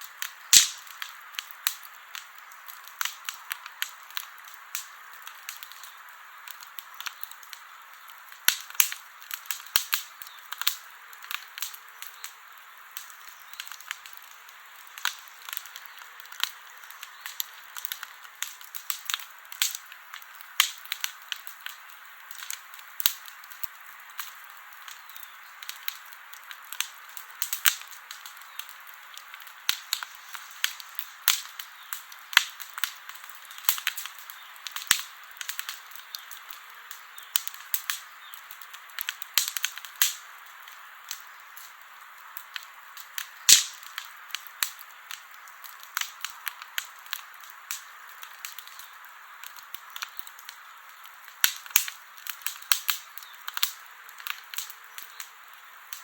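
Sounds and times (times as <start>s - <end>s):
campfire crackling: 0.0s - 56.0s.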